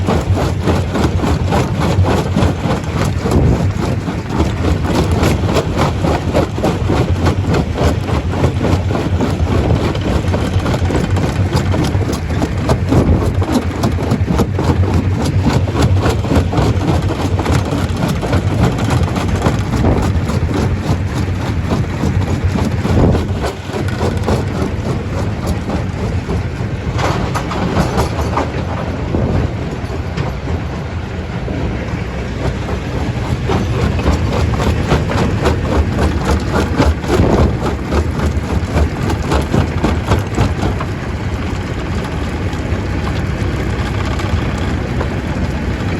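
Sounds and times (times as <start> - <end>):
rock knocking and rattling: 0.0 - 30.8, 31.8 - 45.9
heavy motor drone: 0.0 - 45.9.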